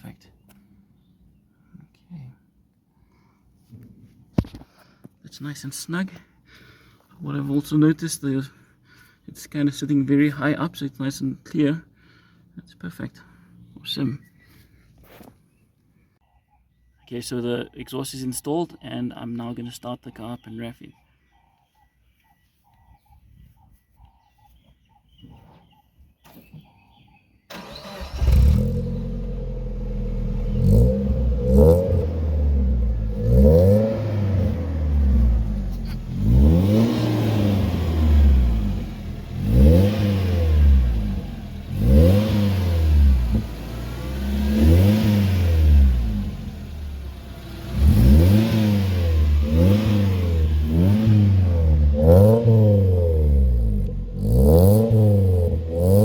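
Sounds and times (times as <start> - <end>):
car engine starting: 27.5 - 56.0
engine revving in short blips: 27.5 - 56.0.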